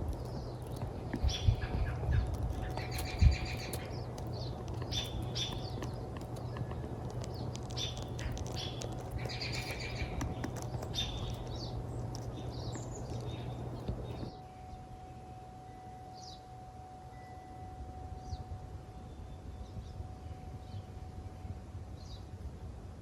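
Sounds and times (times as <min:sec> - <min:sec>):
low rumble: 0:00.0 - 0:15.0
birds chirping: 0:00.0 - 0:22.4.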